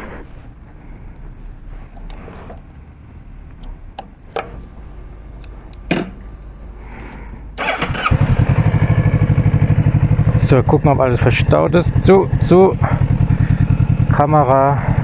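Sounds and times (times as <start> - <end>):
motorcycle engine starting and idling: 7.6 - 15.0.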